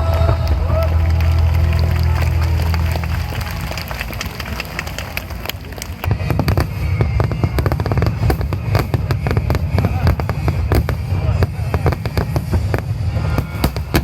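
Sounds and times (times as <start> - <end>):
fireworks crackling pops: 3.8 - 14.0
fireworks deep booming rumble: 6.1 - 14.0.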